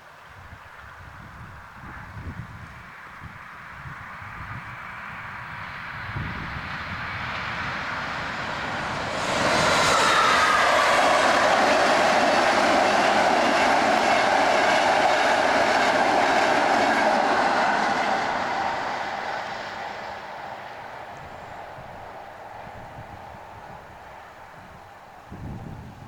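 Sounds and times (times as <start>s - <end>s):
train wheels clattering on rails: 7.2s - 23.1s.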